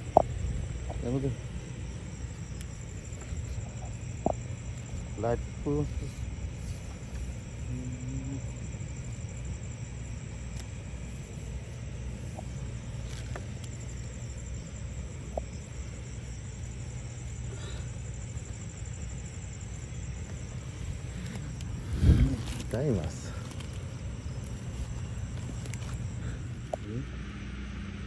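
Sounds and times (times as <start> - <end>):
insects trilling: 0.0 - 28.0
steady low rumble: 0.0 - 28.0.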